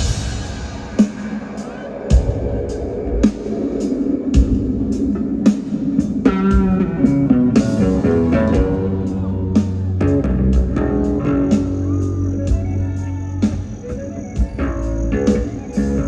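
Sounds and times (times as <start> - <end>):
steady drum beat: 0.0 - 16.0
bass guitar: 6.2 - 16.0
electric guitar notes: 6.2 - 16.0.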